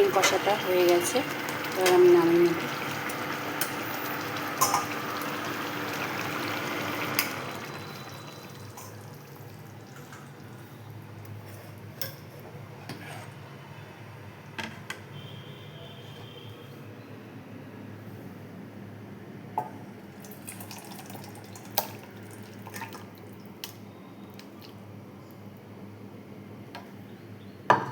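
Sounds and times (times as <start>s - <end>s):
curry bubbling in a pan: 0.0s - 11.8s.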